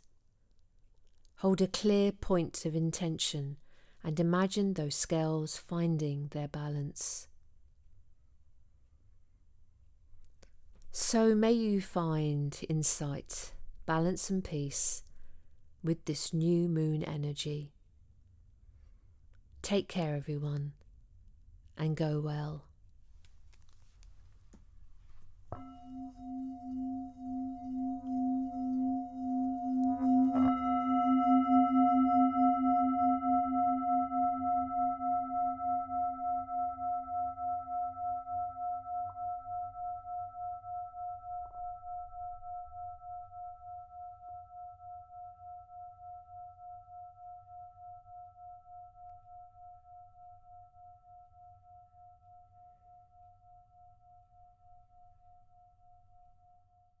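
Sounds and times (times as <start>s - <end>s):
singing bowl ringing: 25.6s - 56.7s.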